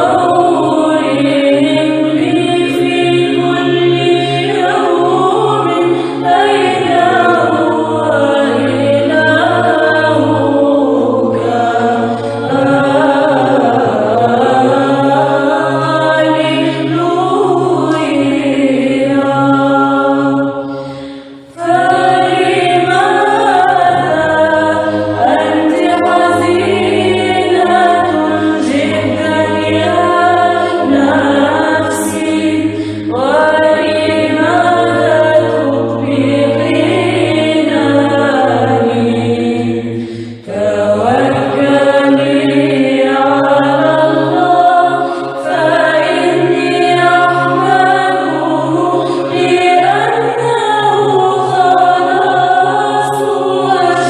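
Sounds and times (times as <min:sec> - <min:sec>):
held low vocal drone: 0:00.0 - 0:54.0
women's choir chanting: 0:00.0 - 0:54.0.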